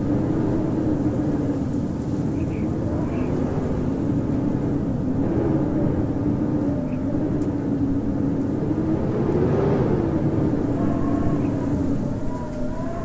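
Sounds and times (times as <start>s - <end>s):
low moaning wind note: 0.0s - 13.0s
strong wind howling: 0.0s - 13.0s.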